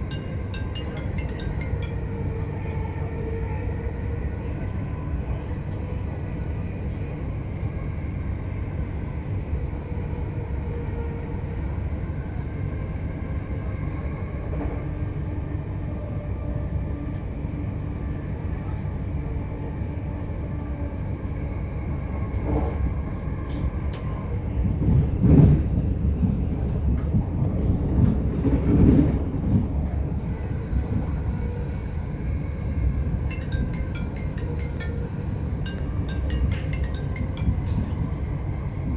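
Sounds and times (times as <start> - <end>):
train wheels rumbling on rails: 22.3 - 38.9.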